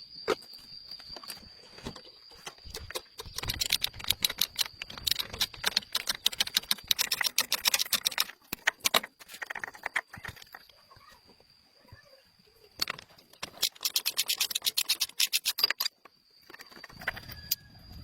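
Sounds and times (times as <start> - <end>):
rapid clicking and tapping: 2.4 - 10.6, 12.8 - 17.3.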